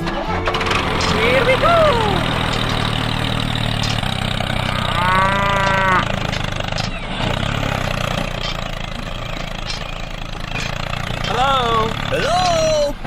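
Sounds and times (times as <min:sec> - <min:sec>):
small engine running: 0:00.0 - 0:13.0
cow mooing: 0:00.8 - 0:06.6.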